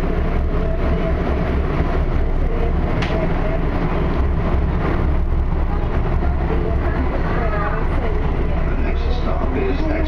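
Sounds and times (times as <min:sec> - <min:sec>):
train wheels and motors rumbling: 0:00.0 - 0:10.0.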